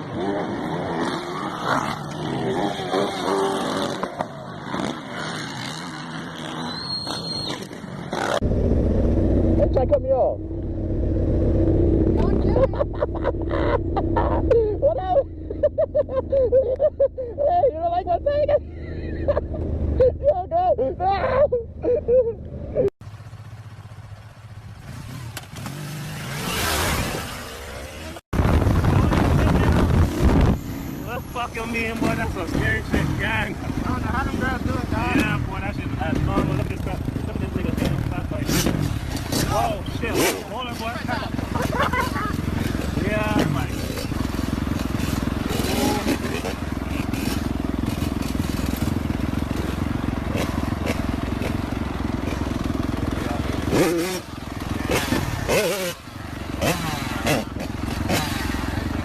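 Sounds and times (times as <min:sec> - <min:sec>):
motorcycle engine running: 0:08.2 - 0:20.4, 0:22.6 - 0:59.0
vehicle engine revving past: 0:24.8 - 0:28.2.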